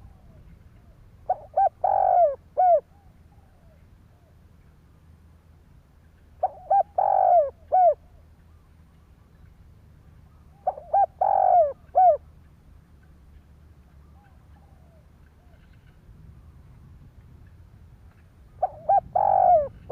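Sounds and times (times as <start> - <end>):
dove cooing: 0.0 - 4.3, 6.4 - 8.1, 10.5 - 12.3, 18.6 - 19.9.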